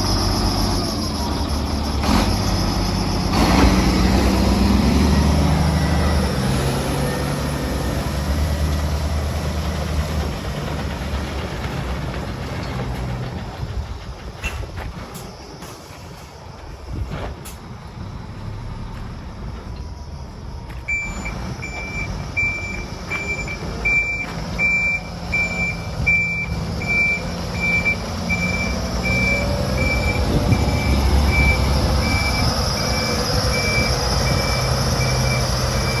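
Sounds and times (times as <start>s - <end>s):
reversing alarm beeping: 0.0s - 7.4s, 20.7s - 36.0s
dump truck engine running: 0.0s - 36.0s.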